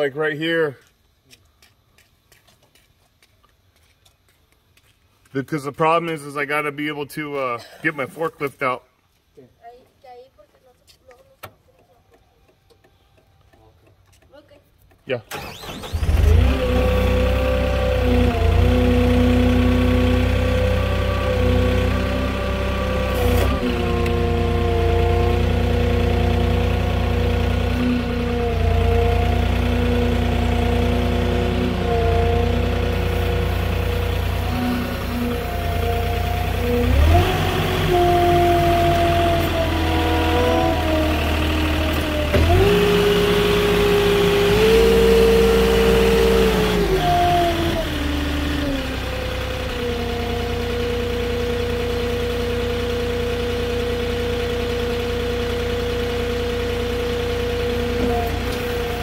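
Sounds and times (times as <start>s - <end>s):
forklift engine revving: 15.2s - 59.0s.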